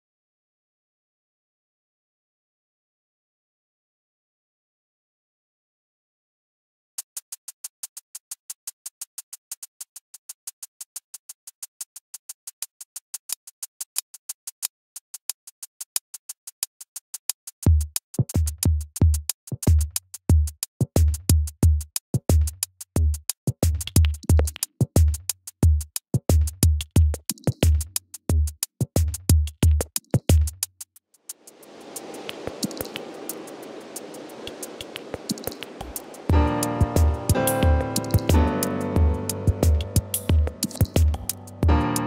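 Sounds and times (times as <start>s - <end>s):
crisp high drum machine ticks: 7.0s - 30.6s, 34.5s - 42.0s
deep kick and bass thumps: 36.3s - 41.9s.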